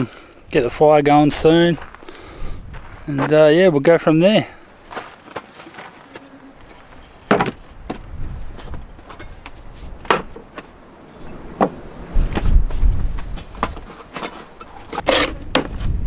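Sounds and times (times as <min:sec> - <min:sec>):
wind rumble on microphone: 0:00.4 - 0:03.3, 0:06.7 - 0:16.0
sharp knocks and clunks: 0:05.4 - 0:15.9.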